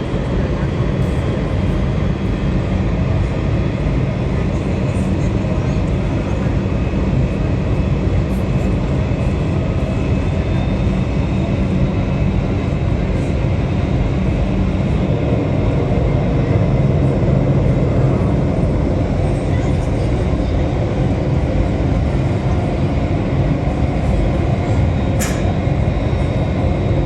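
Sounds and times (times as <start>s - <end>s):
jet engines running: 0.0s - 27.0s.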